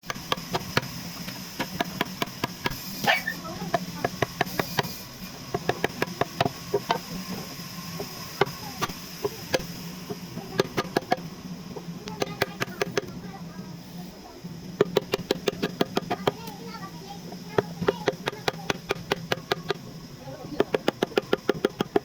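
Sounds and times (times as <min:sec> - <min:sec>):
steady low hum: 0:00.0 - 0:22.0
hand tools knocking on wood: 0:03.7 - 0:04.9, 0:05.5 - 0:07.0, 0:08.0 - 0:11.2, 0:14.8 - 0:16.5, 0:17.6 - 0:19.8, 0:20.4 - 0:22.0.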